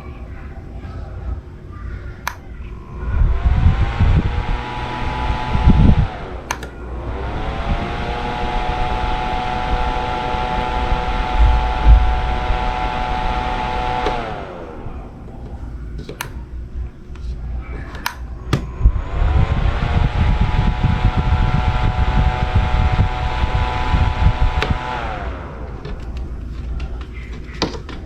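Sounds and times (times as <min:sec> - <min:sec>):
fan motor whirring: 0:00.0 - 0:28.0
sharp clicks: 0:02.2 - 0:02.7, 0:05.3 - 0:06.8, 0:10.6 - 0:16.4, 0:22.9 - 0:28.0.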